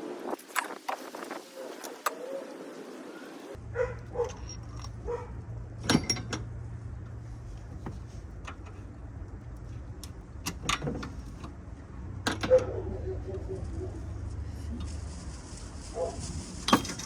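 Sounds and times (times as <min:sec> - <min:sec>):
metal parts clinking: 0:04.1 - 0:05.0, 0:05.8 - 0:06.5.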